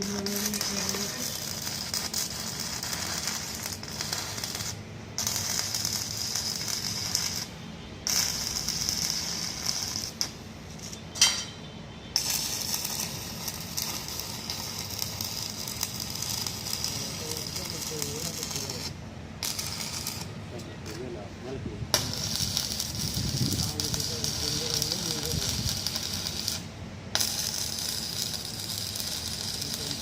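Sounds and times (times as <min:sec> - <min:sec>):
welding arc crackling: 0:00.0 - 0:11.5, 0:12.1 - 0:21.2, 0:21.9 - 0:30.0.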